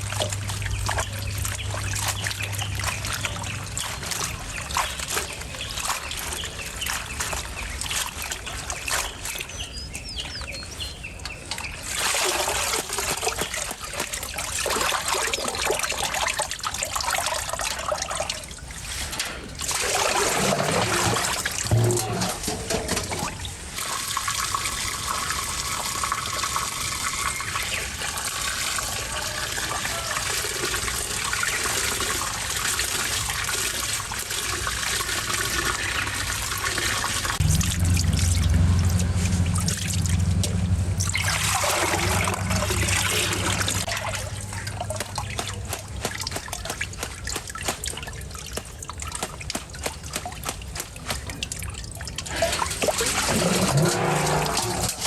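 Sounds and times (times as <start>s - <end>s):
water trickling and splashing: 0.0s - 55.0s
low hum: 37.4s - 45.2s.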